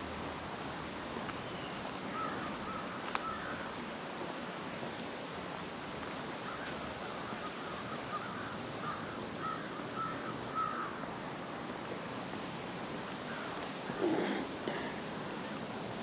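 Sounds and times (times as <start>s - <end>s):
outdoor background hiss: 0.0s - 16.0s
bird calling: 1.4s - 3.7s, 6.4s - 11.0s.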